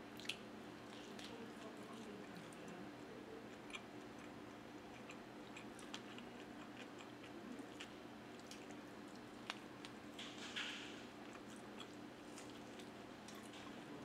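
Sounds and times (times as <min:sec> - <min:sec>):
person chewing: 0:03.5 - 0:10.0, 0:11.2 - 0:13.7.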